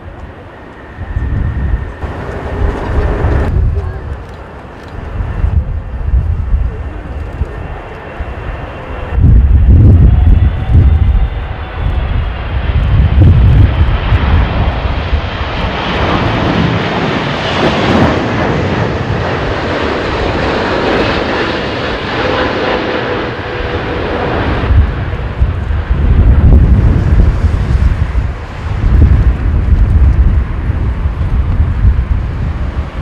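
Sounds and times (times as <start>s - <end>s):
jet engines roaring: 0.0s - 33.0s
wind buffeting microphone: 0.0s - 33.0s.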